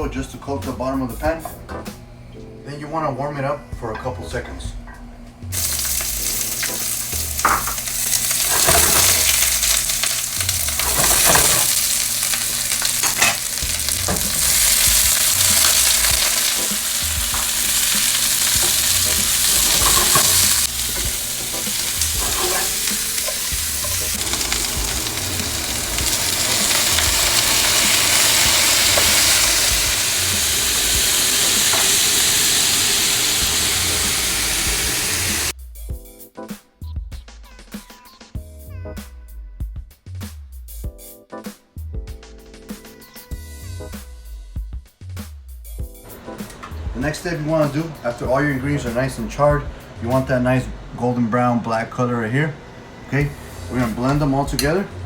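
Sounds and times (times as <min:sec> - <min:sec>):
vegetables sizzling in a frying pan: 0:05.5 - 0:35.5
utensil knocking and scraping pan: 0:10.7 - 0:24.9.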